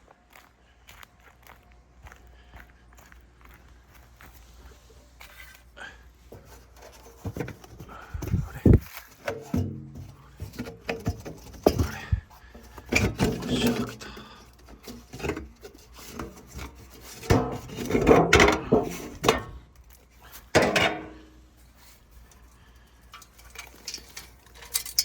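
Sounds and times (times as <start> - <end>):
metal pots and utensils clinking: 20.6 - 21.3, 23.2 - 25.0.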